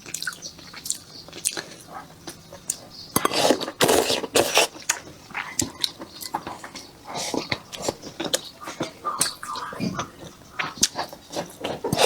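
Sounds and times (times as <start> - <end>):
wet chewing: 0.0 - 12.0
slurping noodles: 7.1 - 12.0.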